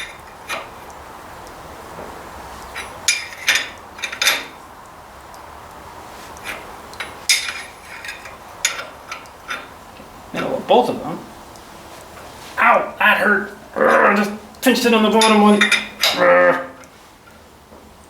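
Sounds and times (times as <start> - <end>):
metal tools clinking: 2.6 - 4.6, 6.3 - 9.8, 15.0 - 16.3.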